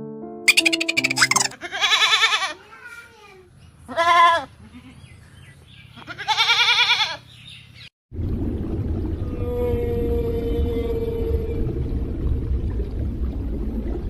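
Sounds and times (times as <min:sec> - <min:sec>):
low rumbling noise: 0:08.1 - 0:14.0.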